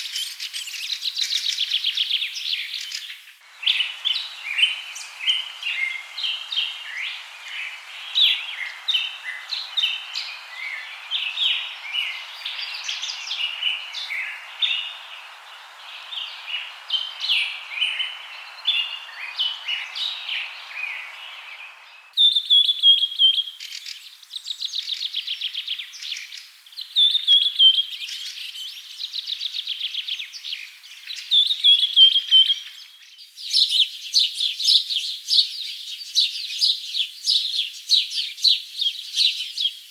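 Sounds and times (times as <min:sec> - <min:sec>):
birds chirping and calling: 0:00.0 - 0:24.0
background hiss: 0:00.0 - 0:39.9
birds singing falling trills: 0:00.0 - 0:39.9.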